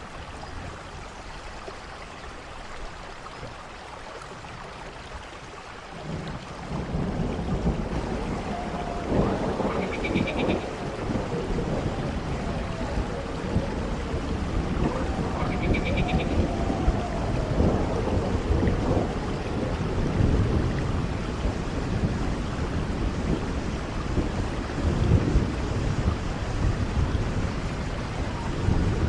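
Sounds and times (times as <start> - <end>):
steady rain-like noise: 0.0 - 29.0
low thunder rumbles: 5.9 - 29.0.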